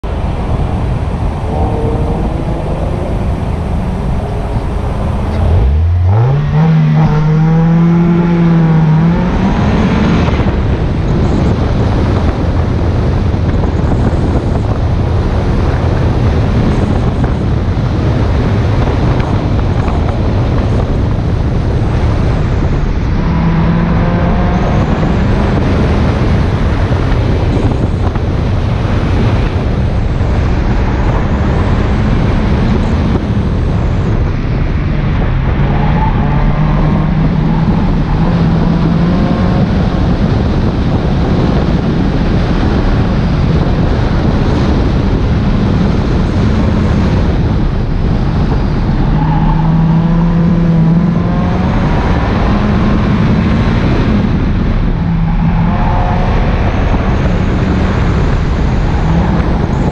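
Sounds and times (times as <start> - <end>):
car engine revving hard: 0.0 - 12.9, 21.9 - 27.9, 43.5 - 59.9
rush of driving noise: 0.0 - 59.9.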